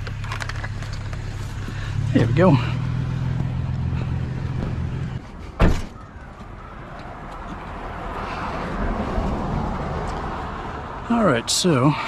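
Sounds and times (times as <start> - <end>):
street traffic: 0.0 - 12.0
vehicle door slamming: 4.4 - 6.1.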